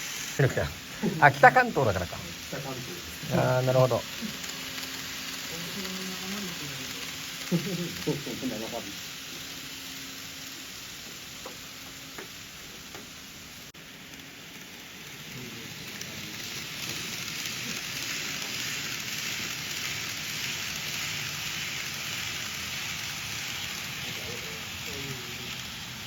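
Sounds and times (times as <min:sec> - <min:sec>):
model trains running on track: 0:00.0 - 0:26.0.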